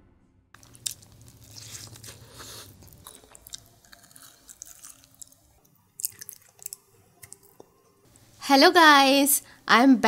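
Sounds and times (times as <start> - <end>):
wet mouth sounds: 0.6 - 5.4
biting and chewing: 0.6 - 7.7.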